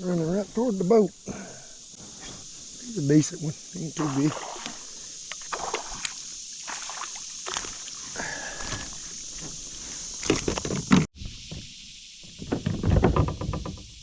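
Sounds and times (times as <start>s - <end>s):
insects hissing: 0.0s - 14.0s
water splashing beside a boat: 3.8s - 10.6s.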